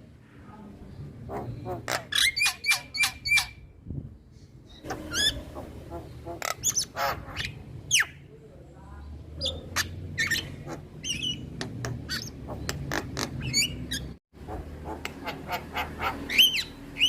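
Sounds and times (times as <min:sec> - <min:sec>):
myna singing whistles and squawks: 0:15.7 - 0:17.0.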